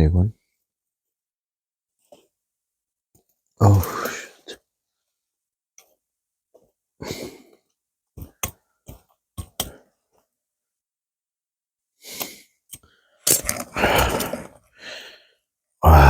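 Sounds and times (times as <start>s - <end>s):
man breathing heavily and sighing: 3.6s - 4.6s, 7.0s - 7.6s, 13.3s - 16.0s.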